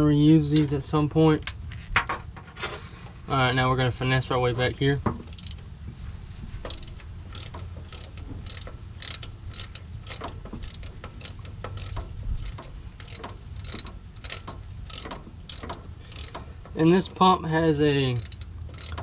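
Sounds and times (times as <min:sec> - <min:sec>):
ratchet wrench clicking: 0:05.3 - 0:05.7, 0:06.7 - 0:19.0.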